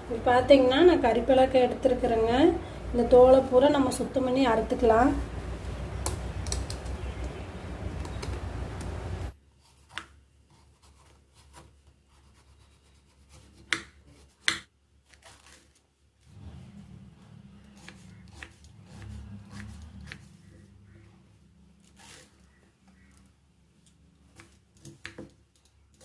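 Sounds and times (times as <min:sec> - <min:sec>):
knife scraping fruit: 0:17.5 - 0:20.7, 0:21.8 - 0:22.6.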